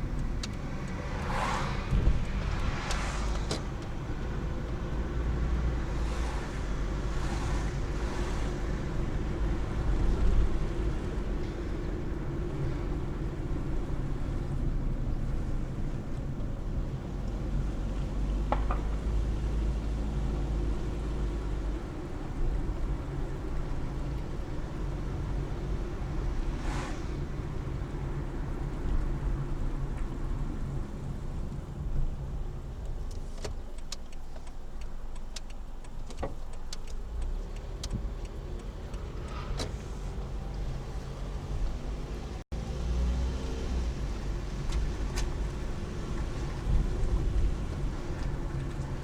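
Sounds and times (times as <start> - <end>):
car engine and tyre rumble: 0.0 - 49.0
hiss: 26.6 - 27.3.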